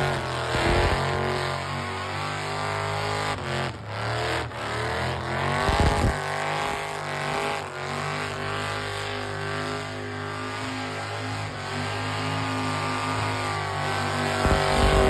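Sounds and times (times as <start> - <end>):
car engine revving: 0.0 - 3.7, 5.0 - 6.8, 10.9 - 15.0.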